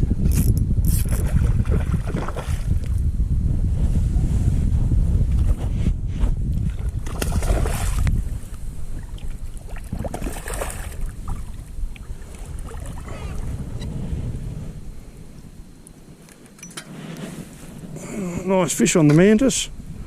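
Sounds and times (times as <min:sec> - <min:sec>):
wind buffeting microphone: 0:00.0 - 0:16.2, 0:16.9 - 0:20.0
shallow water splashing: 0:07.0 - 0:13.4.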